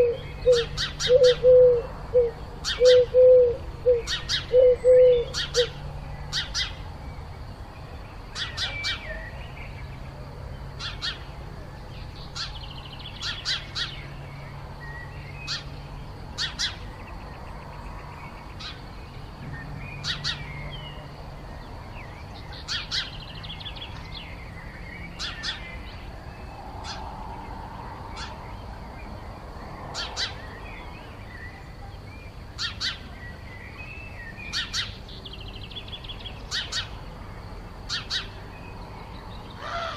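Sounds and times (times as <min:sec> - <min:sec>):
birds sharp call notes: 0:00.0 - 0:07.3, 0:08.1 - 0:10.1, 0:10.8 - 0:29.2, 0:29.8 - 0:31.9, 0:32.5 - 0:37.1, 0:37.9 - 0:39.9.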